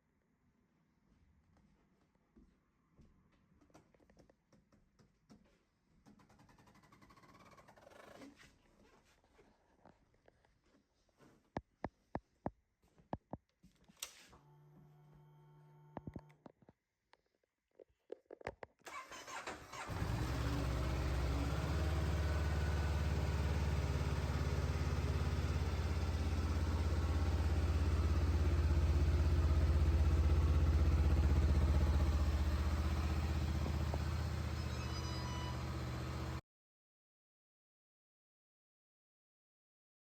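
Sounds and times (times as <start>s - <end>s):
motorcycle engine idling: 19.8s - 34.7s.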